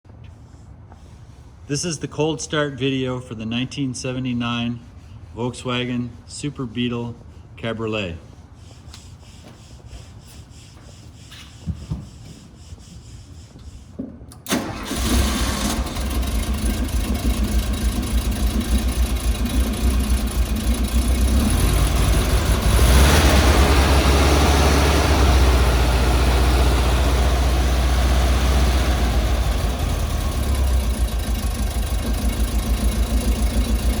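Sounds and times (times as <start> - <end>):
car engine starting and idling: 14.3 - 34.0.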